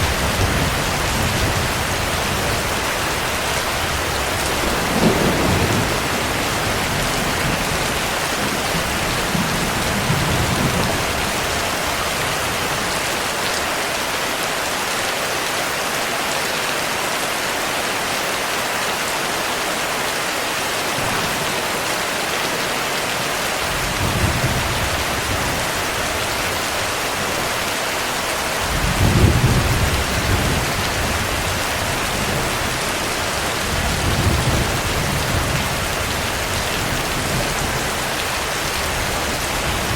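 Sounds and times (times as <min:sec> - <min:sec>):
thunder rolling: 0:00.0 - 0:11.8, 0:28.6 - 0:37.9
heavy rain: 0:00.0 - 0:39.9.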